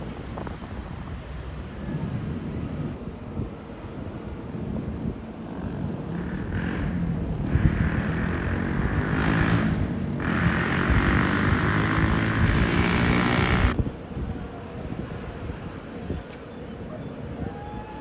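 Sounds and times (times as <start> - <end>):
engine running: 5.5 - 13.8.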